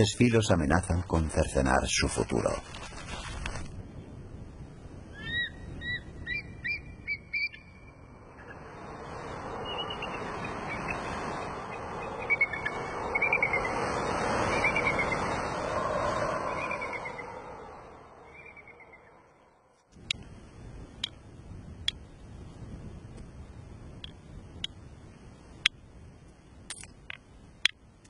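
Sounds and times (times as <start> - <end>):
bird chirping: 5.2 - 8.6, 9.5 - 15.6, 16.5 - 19.7
steady rushing sound: 8.0 - 19.7.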